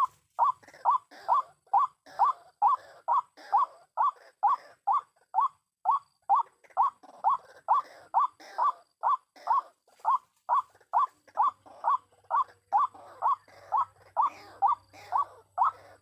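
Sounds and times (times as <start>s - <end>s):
waterhen calling: 0.0s - 3.4s.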